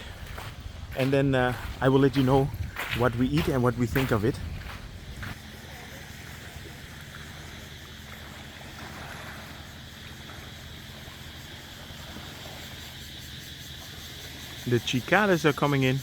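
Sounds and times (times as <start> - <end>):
cicadas droning: 0.0 - 16.0
low steady hum: 4.2 - 13.9.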